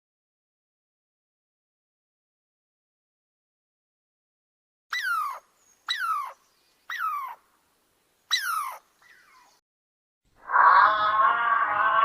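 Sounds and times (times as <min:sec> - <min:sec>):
animal crying downward in pitch: 0:10.4 - 0:12.0.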